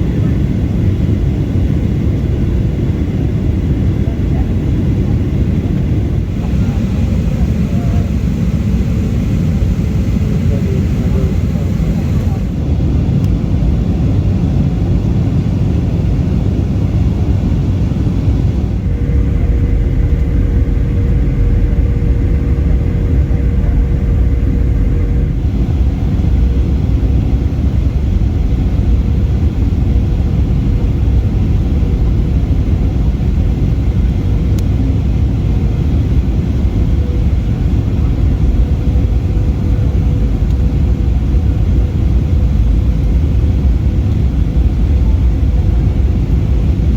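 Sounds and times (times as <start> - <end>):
airplane engines rumbling in cabin: 0.0 - 46.9
faint steady hum: 6.0 - 13.8.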